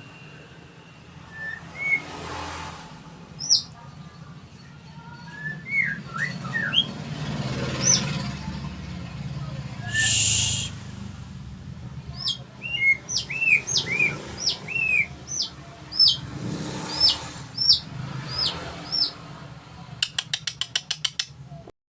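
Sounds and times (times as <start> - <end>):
bird whistling song: 1.2 - 2.2, 3.4 - 3.8, 5.1 - 7.0, 7.8 - 8.1, 9.8 - 10.8, 12.1 - 19.2.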